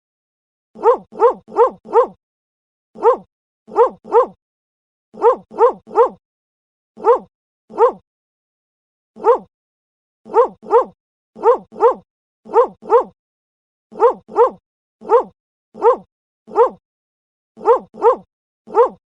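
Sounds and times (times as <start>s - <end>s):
dog barking: 0.8s - 2.2s, 3.0s - 4.4s, 5.2s - 6.2s, 7.0s - 8.0s, 9.2s - 9.5s, 10.3s - 13.2s, 13.9s - 16.8s, 17.6s - 19.0s.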